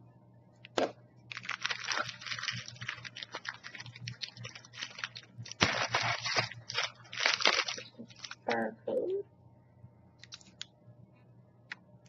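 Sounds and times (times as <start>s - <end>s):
plastic wrapper crinkling: 1.3s - 8.6s, 10.2s - 10.6s.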